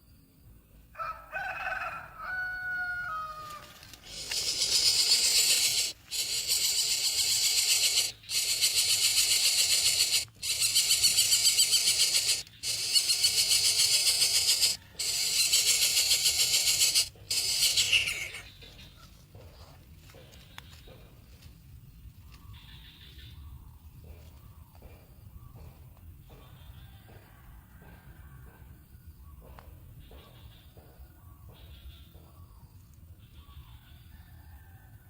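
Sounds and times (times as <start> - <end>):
harsh hissing rasp: 4.0 - 18.5.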